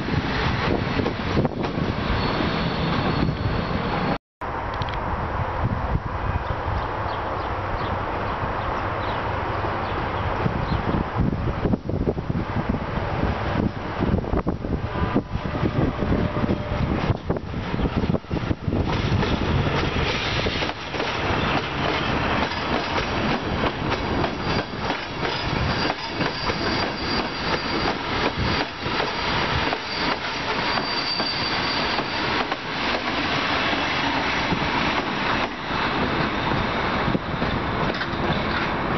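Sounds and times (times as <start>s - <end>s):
diesel locomotive passing: 0.0s - 38.9s
high wheel squeal: 1.8s - 4.2s, 24.1s - 32.6s.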